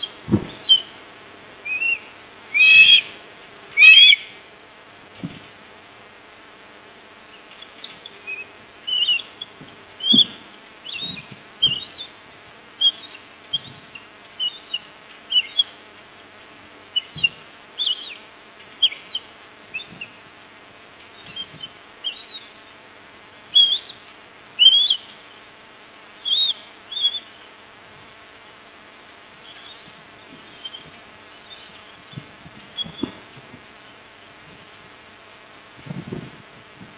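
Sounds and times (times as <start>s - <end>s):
steady low hum: 0.0s - 36.9s
high-pitched bird chirps: 1.7s - 2.0s, 2.6s - 3.1s, 3.8s - 4.3s, 7.8s - 12.1s, 12.8s - 15.7s, 17.0s - 18.2s, 21.2s - 22.6s, 23.6s - 24.0s, 24.6s - 25.1s, 26.2s - 27.4s.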